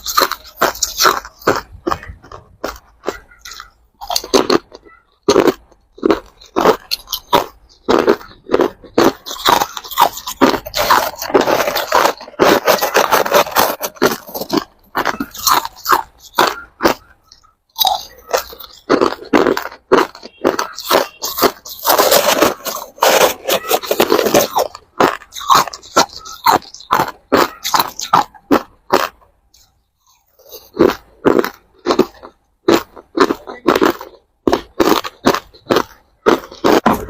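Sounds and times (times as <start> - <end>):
ice crunching being chewed: 0.0 - 37.0.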